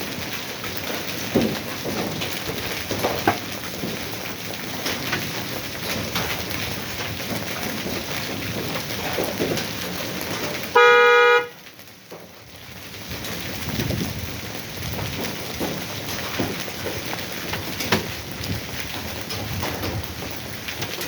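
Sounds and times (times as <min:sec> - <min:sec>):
hail and rain pelting: 0:00.0 - 0:21.0
car horn: 0:10.7 - 0:11.6.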